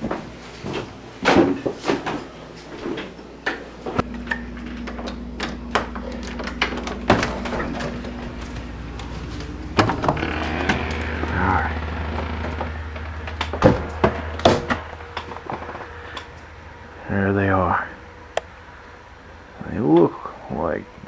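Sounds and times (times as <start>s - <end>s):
steady low hum: 0.0s - 21.0s
door opening and closing: 4.0s - 16.3s.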